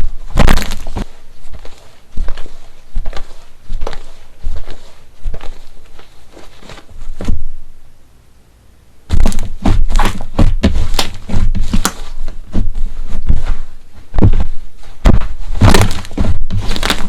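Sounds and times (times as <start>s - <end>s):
slime crackling and popping: 0.3s - 1.0s, 15.6s - 17.0s
low thuds: 9.1s - 17.0s
slime squishing: 15.0s - 17.0s.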